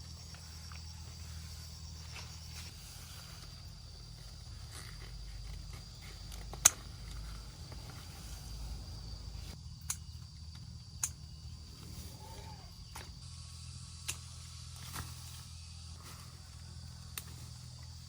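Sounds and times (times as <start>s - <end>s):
high-pitched insect drone: 0.0s - 18.0s
small click: 14.0s - 14.2s.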